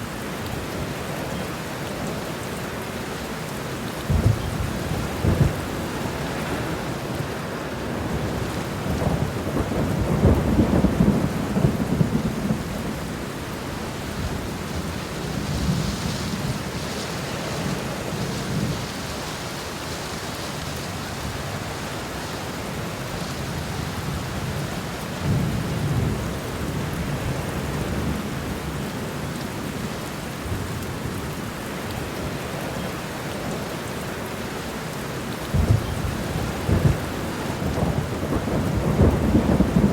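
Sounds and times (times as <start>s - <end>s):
steady rain falling: 0.0s - 39.9s
rolls of thunder: 35.5s - 39.9s.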